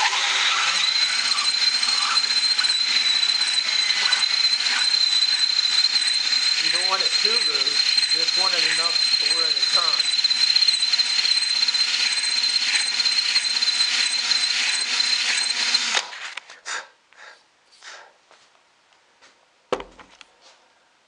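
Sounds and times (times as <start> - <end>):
electric drill whining: 0.0 - 16.4.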